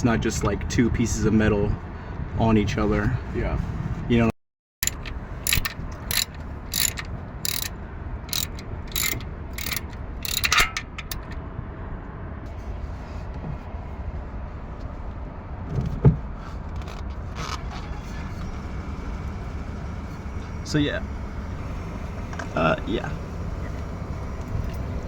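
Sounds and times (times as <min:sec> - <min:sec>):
socket ratchet clicking: 0:04.8 - 0:11.4.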